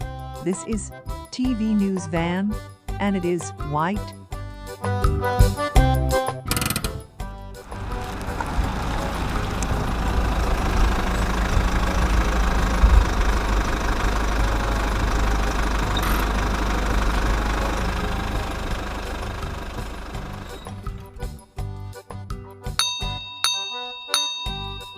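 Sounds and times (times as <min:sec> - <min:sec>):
vehicle engine idling: 0:06.5 - 0:21.8.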